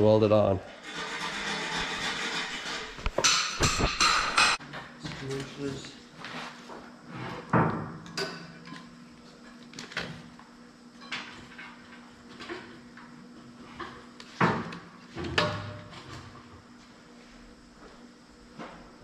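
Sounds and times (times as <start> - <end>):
metal tools clanking: 0.9 - 4.6.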